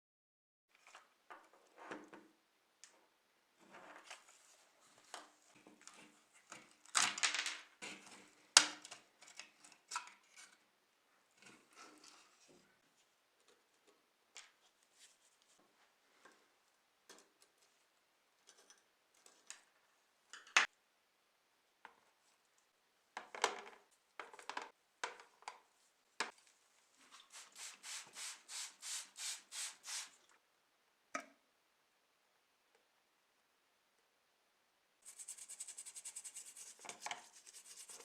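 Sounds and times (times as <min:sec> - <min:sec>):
rubbing strokes: 0:27.0 - 0:30.2, 0:35.0 - 0:38.0.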